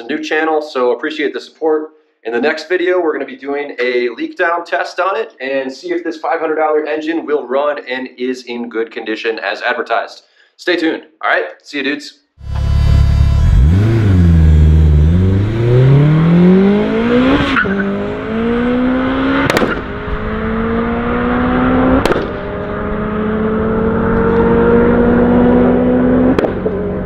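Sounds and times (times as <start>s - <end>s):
car engine accelerating hard: 12.4s - 27.0s.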